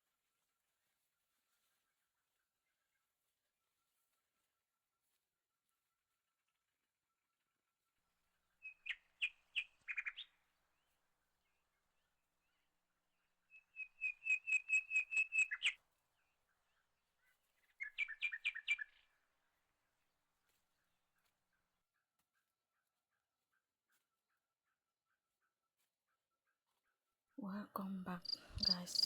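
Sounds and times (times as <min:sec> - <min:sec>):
bird calling with high chirps: 0:08.6 - 0:10.4, 0:13.5 - 0:15.8, 0:17.7 - 0:19.0, 0:28.1 - 0:29.0.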